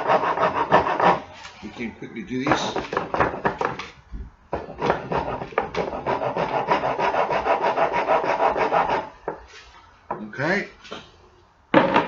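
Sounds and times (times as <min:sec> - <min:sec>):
hand rasp filing wood: 0:00.0 - 0:01.2, 0:04.6 - 0:09.1.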